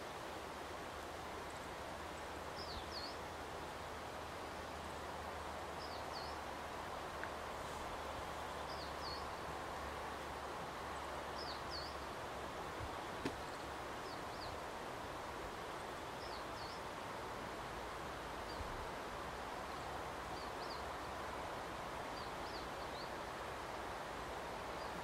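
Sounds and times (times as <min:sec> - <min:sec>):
outdoor background noise: 0:00.0 - 0:25.0.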